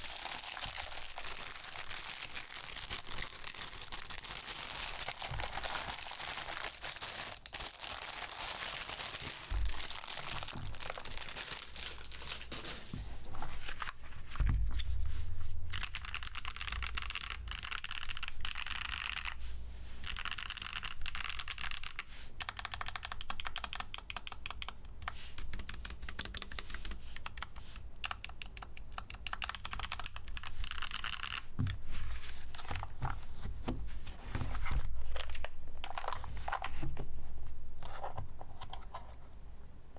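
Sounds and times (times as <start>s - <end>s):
plastic crinkling: 0.0s - 14.4s.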